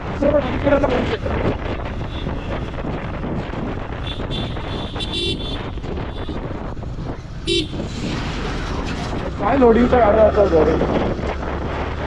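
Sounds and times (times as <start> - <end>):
road and traffic noise: 0.0 - 12.0
wind rushing over microphone: 0.0 - 12.0
vehicle horn tooting: 4.0 - 5.6, 7.5 - 7.8.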